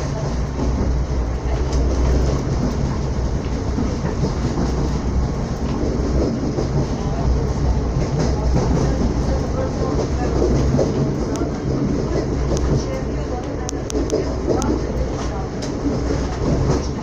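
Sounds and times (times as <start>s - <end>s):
train wheels rumbling on rails: 0.0s - 17.0s
faint track clicks: 1.5s - 17.0s.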